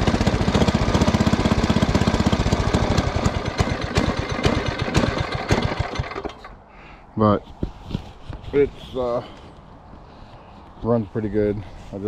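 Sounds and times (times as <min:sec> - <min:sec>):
small engine idling: 0:00.0 - 0:06.6.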